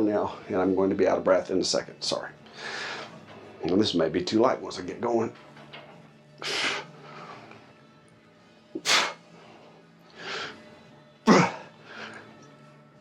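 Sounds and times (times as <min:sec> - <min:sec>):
faint background music: 0:00.0 - 0:13.0
man grunting: 0:11.3 - 0:11.6.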